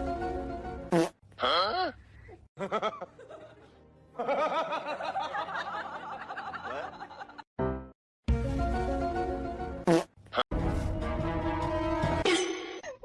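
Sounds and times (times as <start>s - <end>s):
music: 0.0s - 1.0s, 2.8s - 12.3s
snickering laughter: 2.6s - 3.6s.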